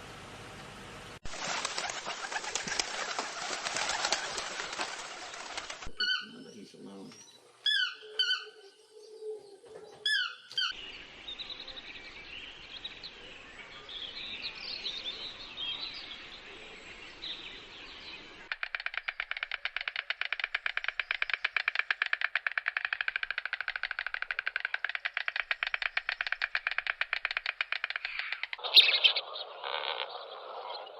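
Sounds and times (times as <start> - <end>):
fast rattling bird trill: 1.3 - 6.4, 18.5 - 30.0
songbirds singing: 2.0 - 30.9.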